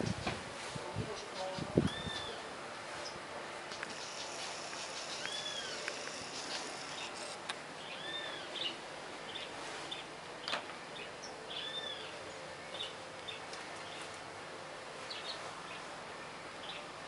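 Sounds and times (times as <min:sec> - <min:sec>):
outdoor hiss: 0:00.0 - 0:17.0
bird chips: 0:03.7 - 0:07.3
bird whistling: 0:03.9 - 0:07.2, 0:07.8 - 0:08.7, 0:11.5 - 0:12.1.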